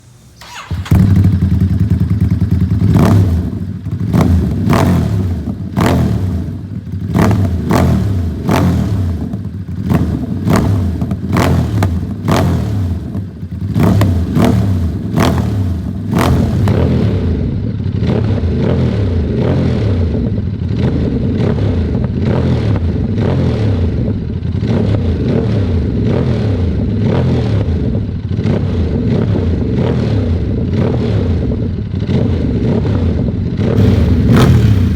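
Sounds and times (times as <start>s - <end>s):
motorcycle engine idling: 0.4s - 19.4s, 33.5s - 34.9s
motorcycle engine revving: 0.4s - 34.9s
exhaust pops: 16.1s - 17.1s, 33.8s - 34.9s.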